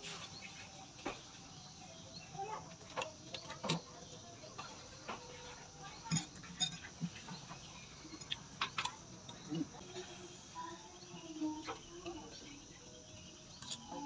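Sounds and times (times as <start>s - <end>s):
dishes clinking: 5.1s - 9.5s.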